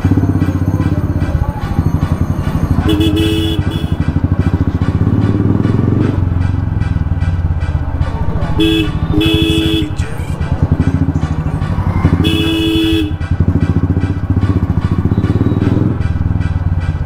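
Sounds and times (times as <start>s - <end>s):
motorcycle engine thumping: 0.0s - 17.0s
vehicle horn honking: 0.1s - 4.6s, 8.5s - 10.2s, 12.0s - 13.4s, 15.0s - 15.9s.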